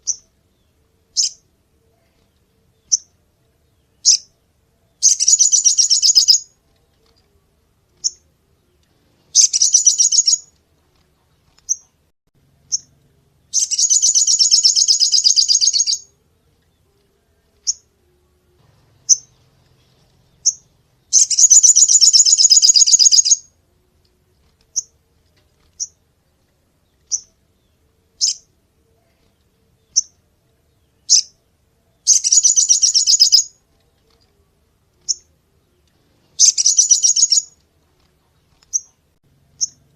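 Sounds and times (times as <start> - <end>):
sunbird trilling: 5.0 - 6.5, 9.3 - 10.5, 13.5 - 16.1, 20.4 - 23.5, 32.1 - 33.5, 36.4 - 37.6
bird chips: 5.0 - 7.4, 8.0 - 12.0, 13.5 - 16.1, 18.9 - 23.4, 32.1 - 34.4, 35.9 - 39.0.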